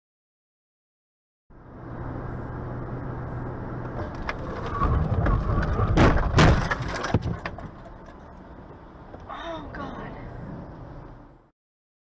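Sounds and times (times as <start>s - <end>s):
vehicle engine and road noise: 1.5s - 11.5s
very loud bangs: 4.8s - 7.7s.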